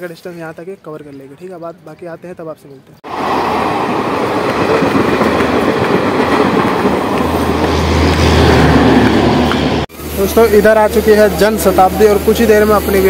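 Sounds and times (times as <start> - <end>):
train wheels rumbling on rails: 3.1 - 13.0.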